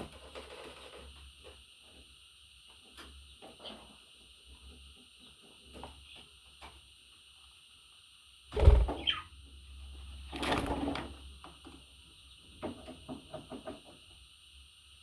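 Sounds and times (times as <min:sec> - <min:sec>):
budgie chirping: 0:08.6 - 0:09.3.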